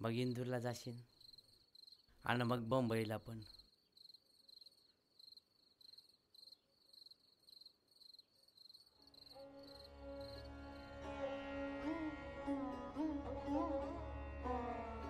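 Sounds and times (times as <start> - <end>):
cricket chirping: 0.0 - 2.2, 3.2 - 10.5
soft string music: 9.3 - 15.0.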